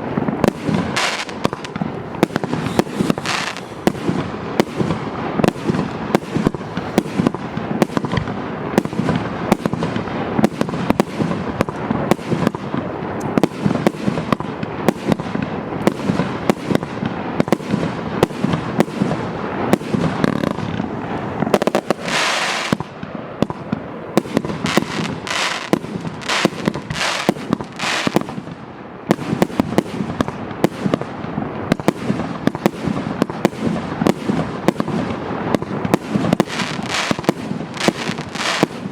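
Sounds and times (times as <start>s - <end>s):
firework barrage of bangs: 0.0s - 38.9s
firework hissing bursts: 0.2s - 8.0s, 17.8s - 23.4s, 24.2s - 28.3s, 35.3s - 38.9s.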